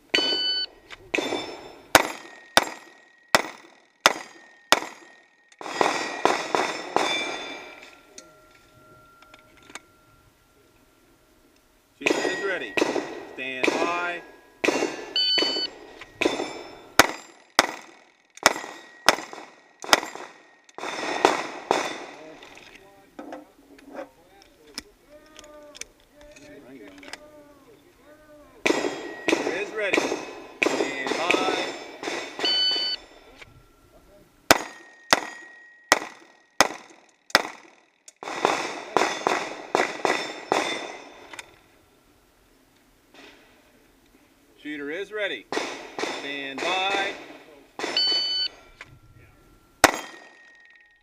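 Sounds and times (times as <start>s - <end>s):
shot timer beep: 0.1s - 0.7s, 15.2s - 15.7s, 32.4s - 33.0s, 48.0s - 48.6s
steel plates ringing: 0.1s - 3.4s, 4.1s - 17.4s, 28.6s - 36.0s
pistol shots: 1.1s - 7.7s, 12.0s - 22.3s, 28.6s - 33.0s, 34.5s - 41.4s, 45.5s - 48.3s, 49.8s - 50.5s.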